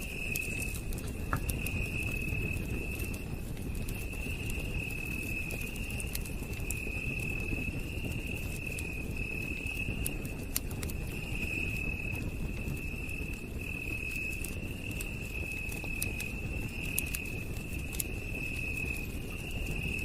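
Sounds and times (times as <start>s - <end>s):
campfire crackling and popping: 0.0s - 20.0s
night insects trilling: 0.0s - 20.0s.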